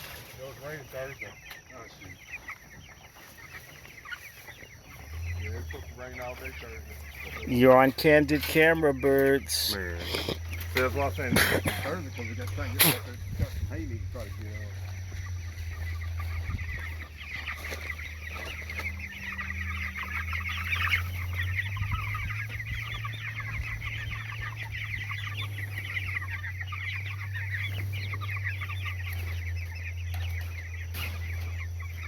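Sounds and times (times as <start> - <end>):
chickens clucking and chirping: 0.0 - 32.0
steady low hum: 4.8 - 32.0.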